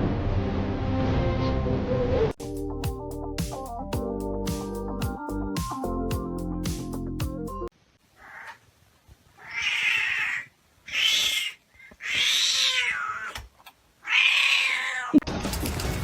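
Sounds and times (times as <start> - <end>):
cat meowing: 8.2 - 8.6, 9.4 - 13.4, 14.0 - 15.2.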